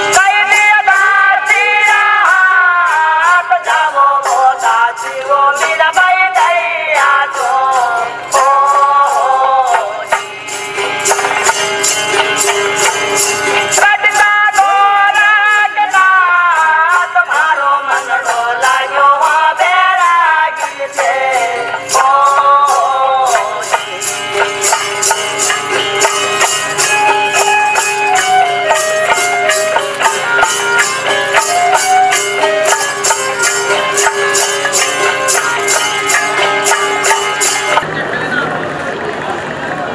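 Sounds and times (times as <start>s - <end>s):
jingling hand percussion: 0.0s - 39.3s
sliding wavering melody: 23.5s - 39.9s
steady drone: 32.7s - 39.9s.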